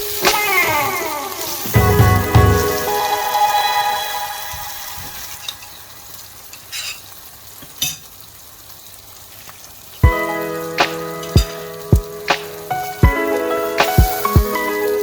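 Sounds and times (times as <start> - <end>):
food sizzling in a pan: 0.0 - 15.0
music note: 0.2 - 5.7
spoon scraping a pan: 6.6 - 7.1.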